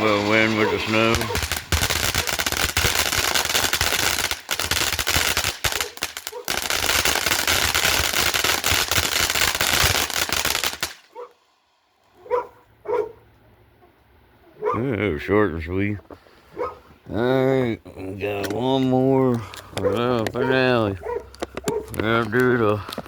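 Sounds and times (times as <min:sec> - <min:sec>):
firework fountain crackling: 0:00.0 - 0:11.2.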